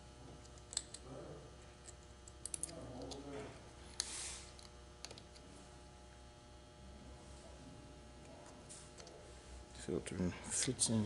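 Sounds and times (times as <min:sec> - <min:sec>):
small metal parts clicking: 0:01.8 - 0:03.2
short scraping hiss: 0:04.0 - 0:04.5.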